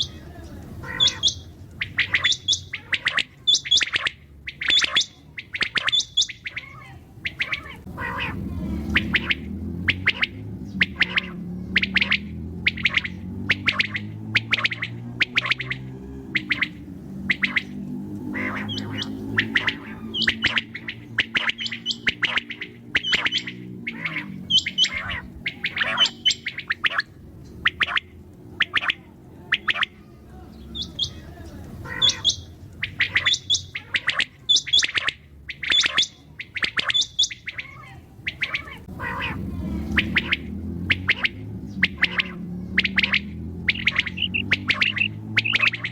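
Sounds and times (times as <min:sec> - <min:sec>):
quail chirping: 0:00.0 - 0:45.9.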